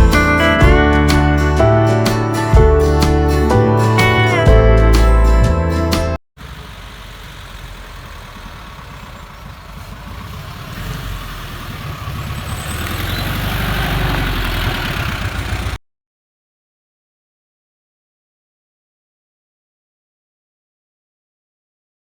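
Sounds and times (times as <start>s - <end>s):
car engine rumbling: 6.4s - 15.8s.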